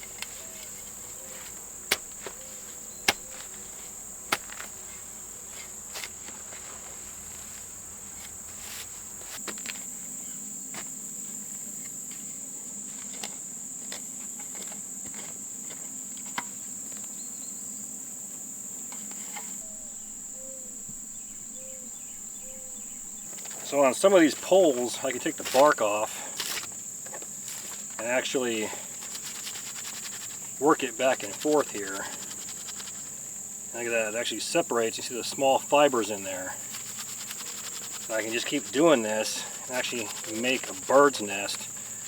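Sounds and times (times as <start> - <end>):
high-pitched insect chirring: 19.6 - 23.3, 33.8 - 41.9.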